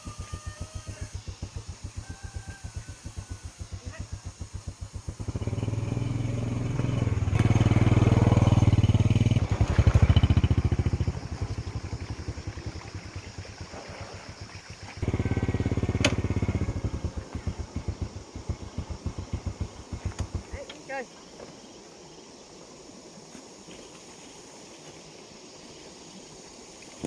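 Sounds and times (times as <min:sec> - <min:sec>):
small engine chugging: 0:00.0 - 0:21.3.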